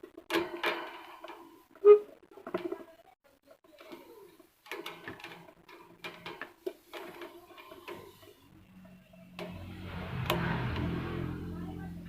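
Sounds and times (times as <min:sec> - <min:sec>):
electric fan motor hum: 0:06.8 - 0:12.0.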